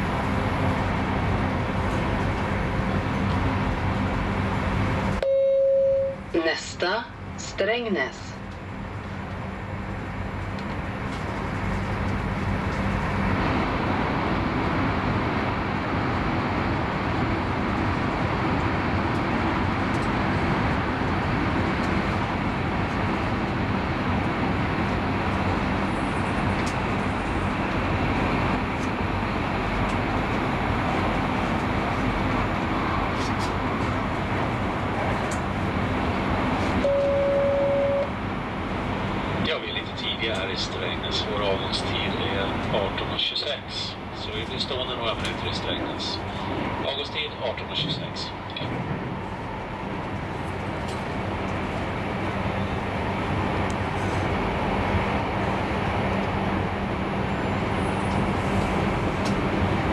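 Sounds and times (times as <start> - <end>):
train rumble and air rush: 0.0 - 59.9
short tone: 5.2 - 6.2, 36.8 - 38.1.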